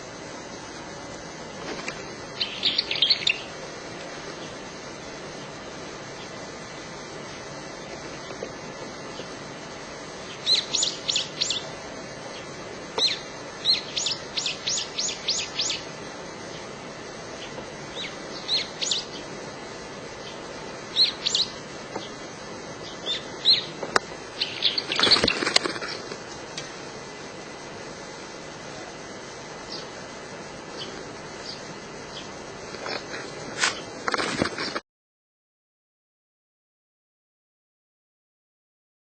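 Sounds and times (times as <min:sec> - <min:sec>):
songbird chirping: 0:01.6 - 0:04.7, 0:10.0 - 0:26.7, 0:29.5 - 0:33.0.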